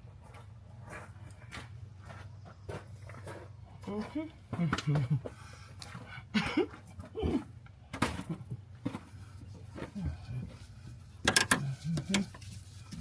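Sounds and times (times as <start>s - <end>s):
hand tools clicking on metal: 11.3s - 12.4s.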